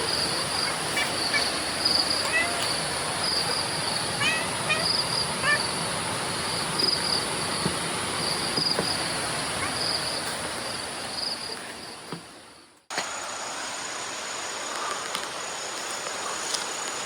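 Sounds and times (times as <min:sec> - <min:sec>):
insects chirping in trills: 0:00.0 - 0:17.0
steady outdoor hiss: 0:00.0 - 0:17.0.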